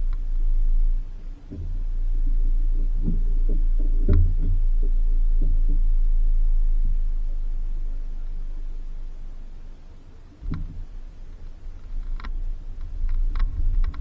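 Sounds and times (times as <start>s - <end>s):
vehicle rumble on dirt road: 0.0s - 14.0s
suspension knocks and clunks: 10.4s - 14.0s.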